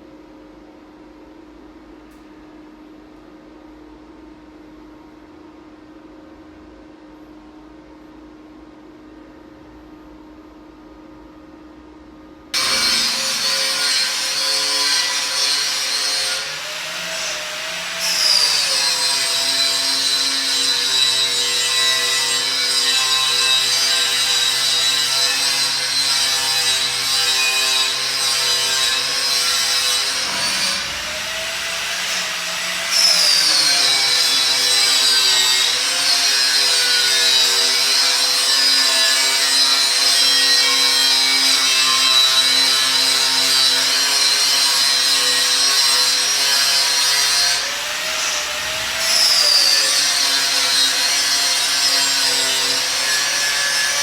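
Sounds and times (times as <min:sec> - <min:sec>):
power tool grinding metal: 0:12.6 - 0:54.0.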